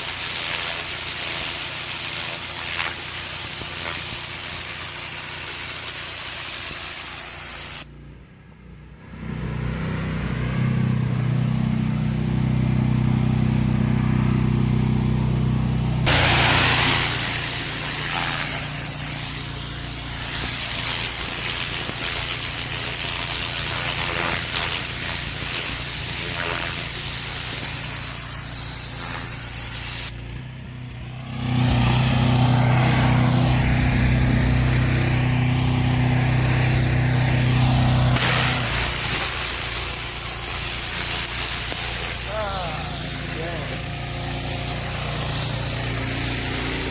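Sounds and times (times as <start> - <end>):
high-pressure water spraying: 0.0 - 7.9, 16.0 - 30.2, 32.6 - 46.9
pressure washer engine running: 0.0 - 8.6, 9.5 - 46.9.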